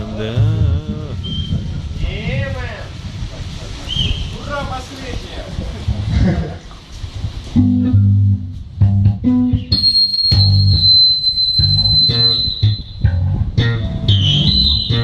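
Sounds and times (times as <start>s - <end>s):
bass guitar low notes: 0.0s - 3.6s, 5.6s - 15.0s
plucked guitar notes: 7.6s - 15.0s
steady high tone: 9.8s - 13.2s.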